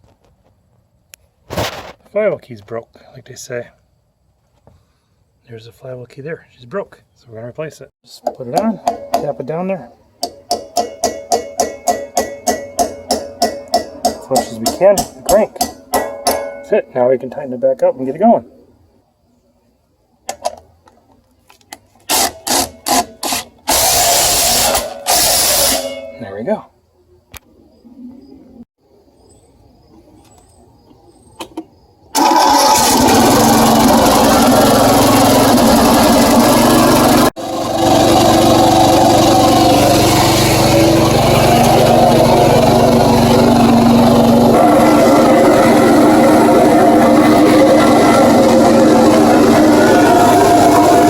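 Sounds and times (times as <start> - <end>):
lawn tractor engine running: 10.2 - 16.8, 32.2 - 51.0
power tool bursts: 22.1 - 25.9, 32.2 - 51.0.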